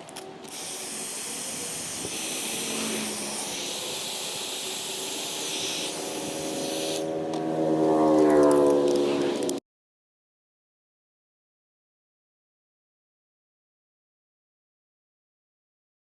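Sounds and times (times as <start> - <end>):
heat tool rushing hiss: 0.5 - 7.3.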